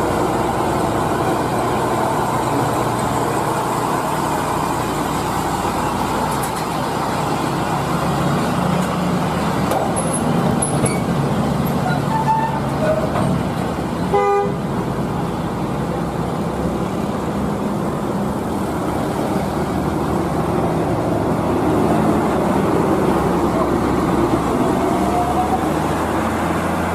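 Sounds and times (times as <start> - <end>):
truck engine running: 0.0 - 26.9
truck horn toot: 11.8 - 13.0, 14.1 - 14.6.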